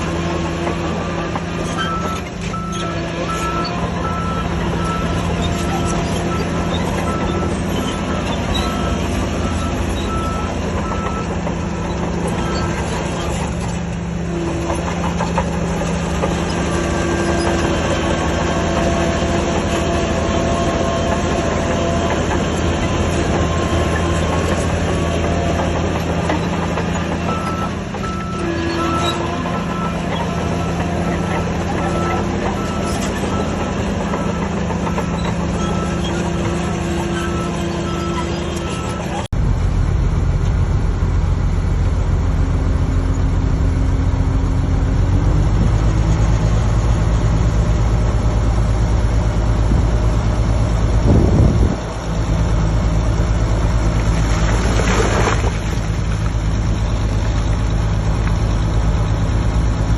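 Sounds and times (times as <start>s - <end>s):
diesel machinery running: 0.0s - 59.9s
reversing alarm beeping: 1.7s - 11.4s, 27.3s - 39.3s.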